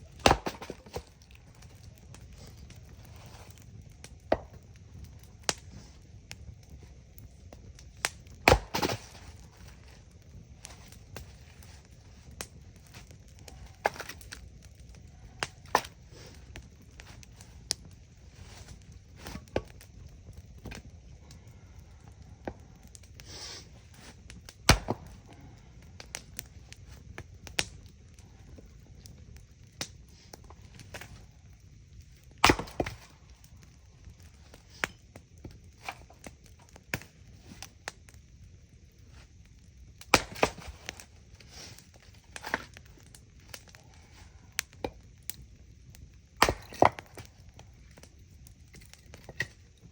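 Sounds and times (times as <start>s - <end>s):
campfire crackling: 0.0s - 49.9s
low steady rumble: 0.0s - 49.9s
wood being chopped: 0.1s - 1.1s, 4.3s - 4.6s, 8.2s - 9.3s, 13.8s - 14.3s, 15.4s - 15.9s, 24.7s - 25.3s, 32.4s - 33.1s, 40.1s - 41.0s, 46.4s - 47.3s.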